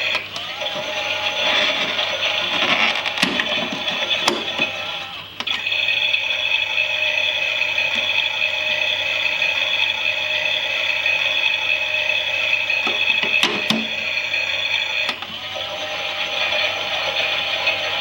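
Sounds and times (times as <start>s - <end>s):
toy washing machine motor whine: 0.0s - 18.0s
click: 5.4s - 5.7s, 15.0s - 15.3s.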